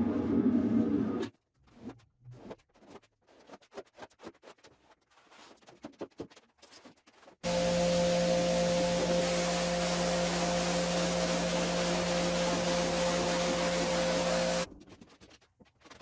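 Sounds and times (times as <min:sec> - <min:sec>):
cleaning machine motor humming: 0:07.4 - 0:14.7
scraping strokes on carpet: 0:07.4 - 0:14.7.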